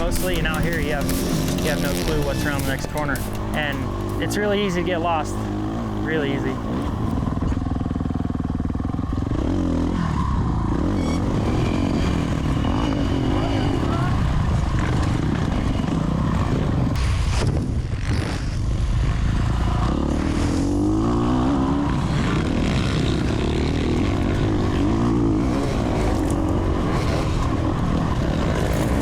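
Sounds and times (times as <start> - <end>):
tyre noise: 0.0 - 7.1
dirt bike engine racing: 0.0 - 29.0.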